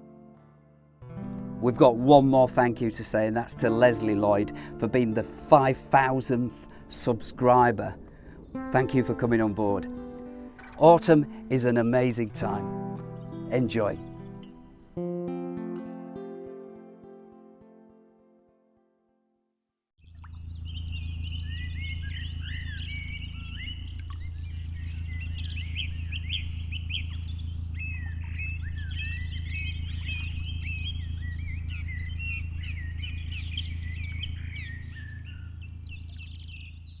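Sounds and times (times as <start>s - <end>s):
steady low drone: 1.0s - 15.0s
small birds chirping: 7.6s - 15.0s, 20.1s - 37.0s.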